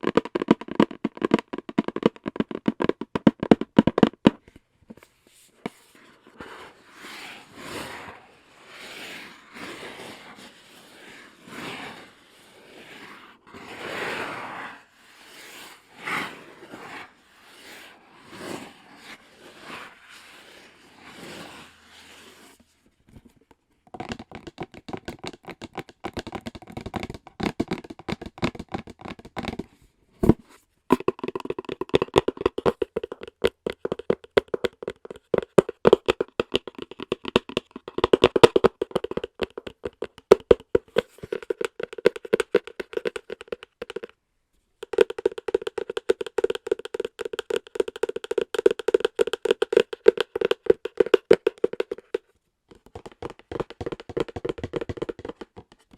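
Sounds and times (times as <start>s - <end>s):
fingertip tapping on hard object: 0.0s - 4.5s, 23.9s - 44.2s, 44.8s - 55.9s.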